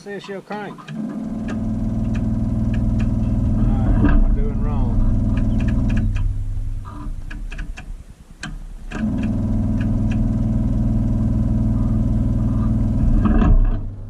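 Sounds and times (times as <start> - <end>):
engine idling: 0.9 - 14.0
light clicks: 5.3 - 6.3.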